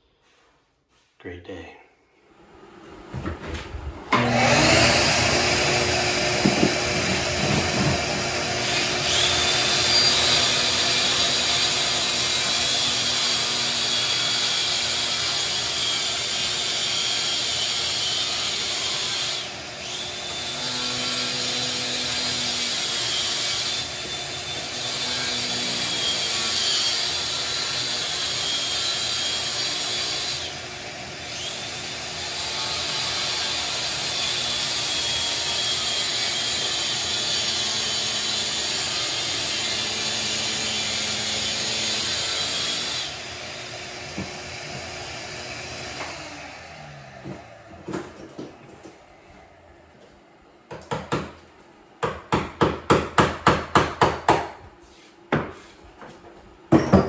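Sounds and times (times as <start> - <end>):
power tool cutting ceramic tile: 4.1 - 48.0.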